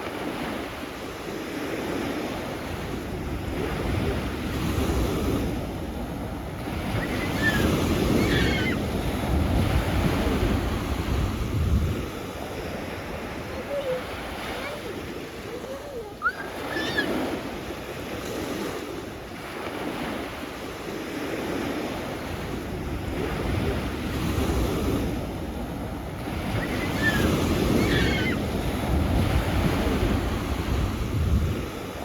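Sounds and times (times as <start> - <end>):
sea waves breaking on shore: 0.0 - 32.0
wind buffeting microphone: 2.7 - 19.2, 22.4 - 32.0
brief high calls: 7.0 - 8.8, 13.5 - 17.3.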